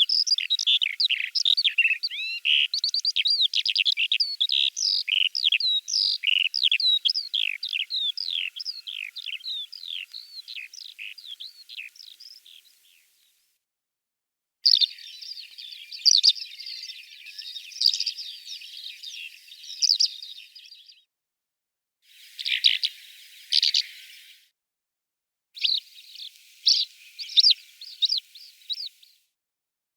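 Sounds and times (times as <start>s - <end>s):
skylark singing: 0.0s - 13.0s, 14.6s - 20.6s, 22.4s - 24.3s.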